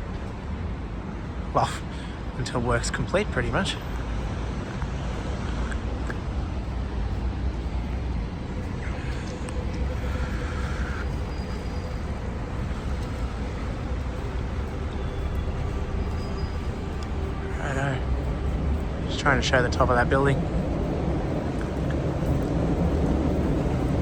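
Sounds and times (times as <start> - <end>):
rumble of passing vehicles: 0.0 - 24.0
brief higher whine: 8.8 - 17.8.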